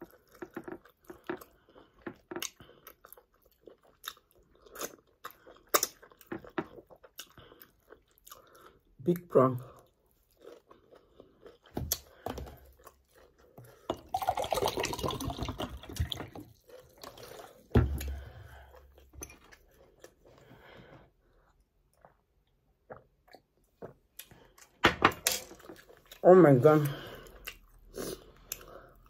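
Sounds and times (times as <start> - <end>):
close chewing with mouth clicks: 0.0 - 9.0, 9.7 - 14.4, 26.8 - 29.0.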